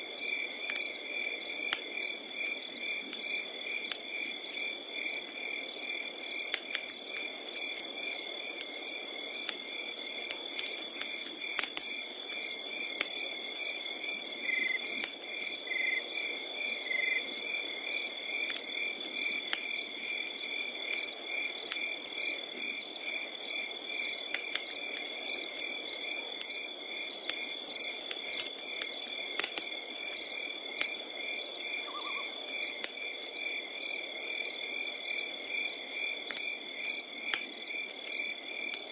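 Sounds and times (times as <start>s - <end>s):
campfire crackling and popping: 0.0s - 38.9s
crickets chirping: 0.0s - 38.9s
high insect trill: 19.2s - 29.1s.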